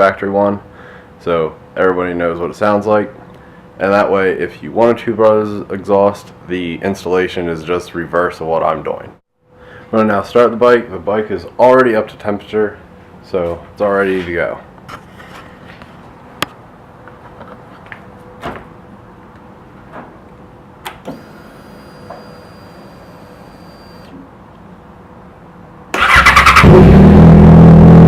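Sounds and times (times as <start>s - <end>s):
faint high whine: 21.1s - 24.2s
motorcycle engine running: 26.0s - 28.0s.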